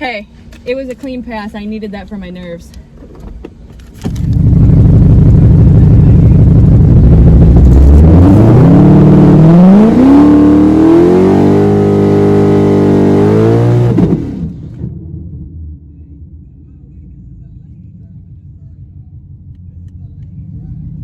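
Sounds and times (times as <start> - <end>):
drag racing car engine at full throttle: 4.0 - 16.4.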